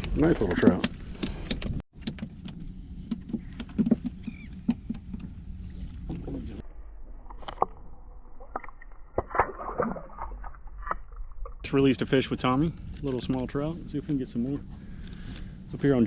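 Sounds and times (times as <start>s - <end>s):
knocks and clicks of handling: 0.7s - 5.4s
low rumble: 2.6s - 16.0s.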